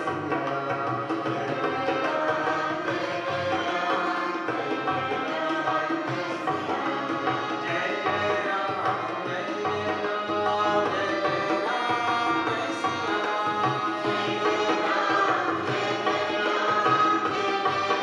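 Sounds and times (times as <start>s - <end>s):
tabla playing a rhythm: 0.0s - 18.0s.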